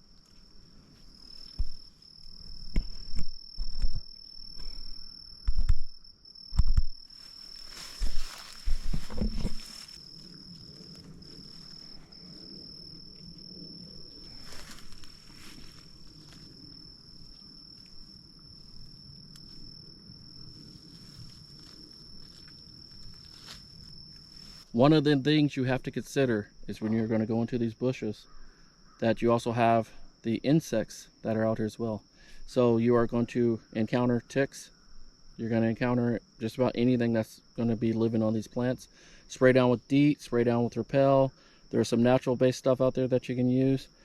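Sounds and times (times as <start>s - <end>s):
high-pitched insect drone: 0.0s - 30.2s
thumps and rustles of handling: 7.6s - 10.0s.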